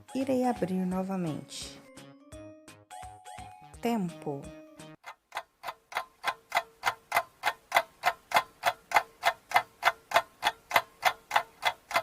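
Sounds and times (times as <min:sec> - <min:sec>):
clock ticking: 0:04.9 - 0:12.0.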